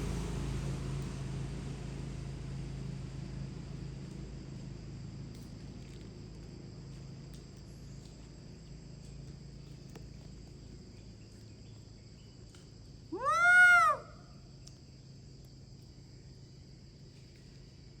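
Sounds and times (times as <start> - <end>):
monkey call: 13.1 - 14.3.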